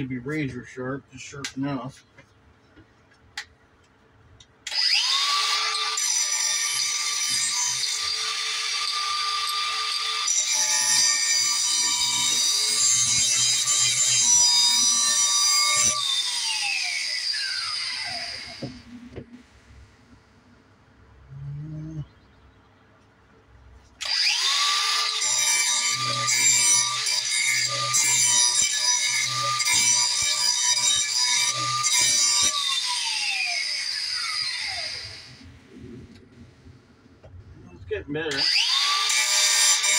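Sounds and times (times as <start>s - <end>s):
grinder grinding steel blade: 4.7s - 19.1s, 24.0s - 35.4s, 38.3s - 39.9s.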